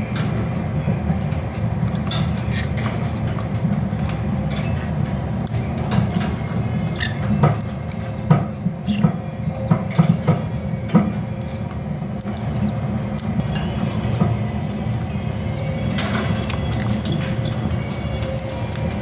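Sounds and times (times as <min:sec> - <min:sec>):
chicks squeaking: 0:02.6 - 0:03.6, 0:08.9 - 0:09.9, 0:12.2 - 0:16.9
steady low hum: 0:09.0 - 0:16.8.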